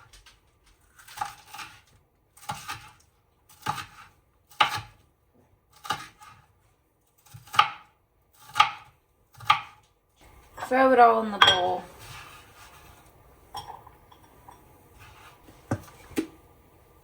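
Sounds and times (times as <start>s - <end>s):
knife chopping on cutting board: 2.4s - 5.0s, 5.7s - 6.5s, 7.2s - 9.8s, 15.0s - 16.3s.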